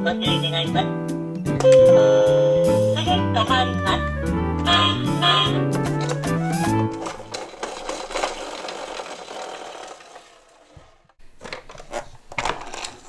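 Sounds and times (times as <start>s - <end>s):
electronic toy tune: 1.6s - 5.8s
toy cars rattling along a track: 5.9s - 11.1s.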